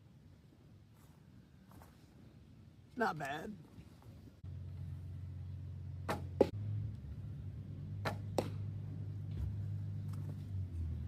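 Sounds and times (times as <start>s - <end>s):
steady low hum: 4.2s - 11.0s
arrow hitting target: 6.0s - 6.6s, 8.0s - 8.6s.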